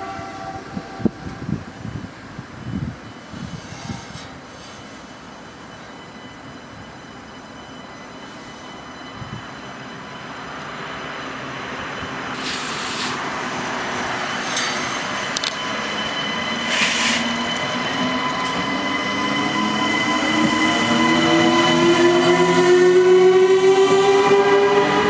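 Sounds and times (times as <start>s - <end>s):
high-pitched train whine: 0.0s - 25.0s
high-speed train approaching: 0.0s - 25.0s
short hisses: 12.4s - 13.2s.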